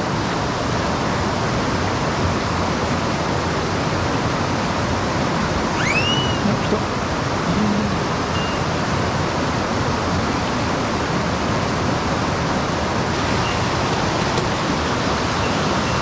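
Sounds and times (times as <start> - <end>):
whistle rising and falling: 5.6 - 6.6.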